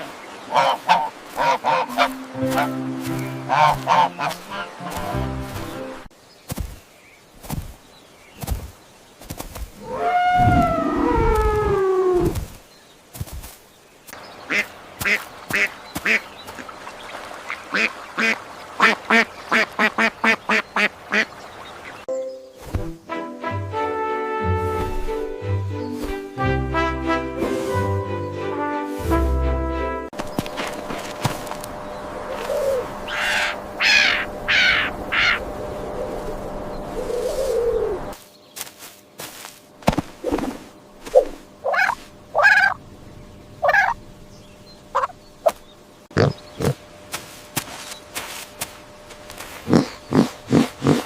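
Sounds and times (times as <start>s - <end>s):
harsh bird calls: 0.0s - 13.0s, 31.2s - 38.7s, 43.4s - 46.8s, 49.6s - 51.0s
duck quacking: 0.5s - 5.5s, 14.5s - 16.3s, 17.7s - 21.3s, 32.3s - 35.4s.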